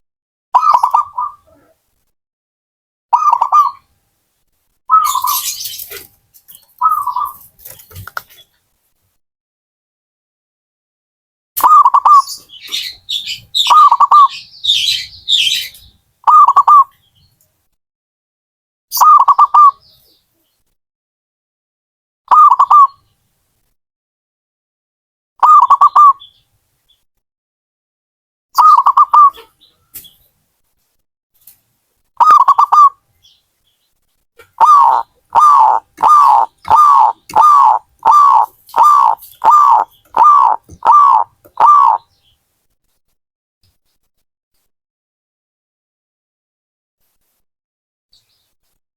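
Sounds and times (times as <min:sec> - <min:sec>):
dove cooing: 0:34.5 - 0:42.0
higher chirping: 0:34.6 - 0:42.0.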